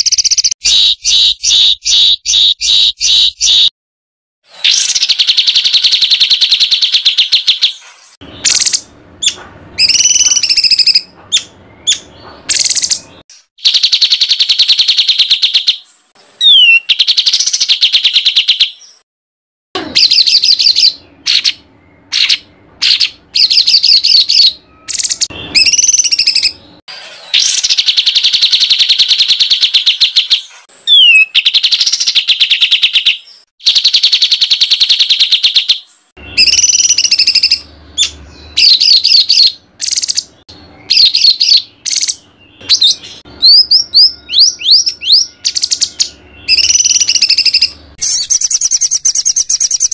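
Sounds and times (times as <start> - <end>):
songbird singing harsh rapid song: 0.0 - 3.7, 4.7 - 19.0, 19.8 - 26.6, 27.4 - 49.9.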